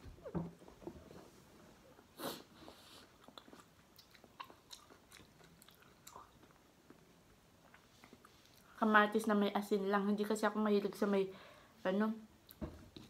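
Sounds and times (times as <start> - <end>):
person chewing food: 2.0 - 8.7.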